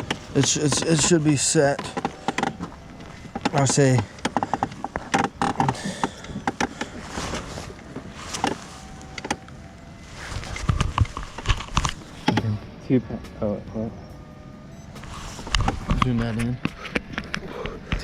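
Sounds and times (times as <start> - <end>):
sharp clicks and knocks: 0.0 - 7.0, 7.9 - 9.6, 10.5 - 12.6.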